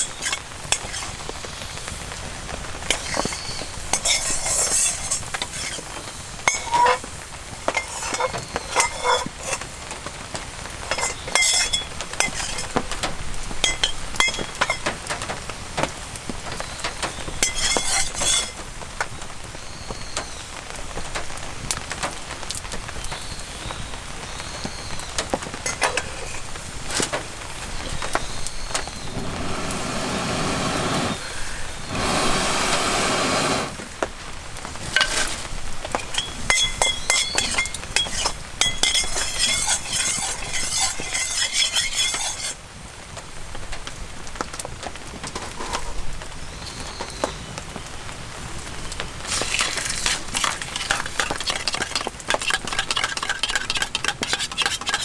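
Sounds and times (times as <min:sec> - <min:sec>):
metal utensil scraping wok: 0:00.0 - 0:14.9, 0:17.0 - 0:18.7, 0:25.2 - 0:34.0, 0:34.6 - 0:42.7, 0:45.3 - 0:46.1, 0:49.2 - 0:55.0
food sizzling: 0:00.0 - 0:19.3, 0:22.9 - 0:42.9, 0:48.5 - 0:55.0.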